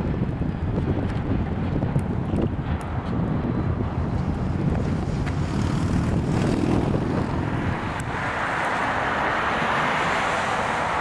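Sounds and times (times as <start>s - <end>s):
low vehicle rumble: 0.0s - 9.9s.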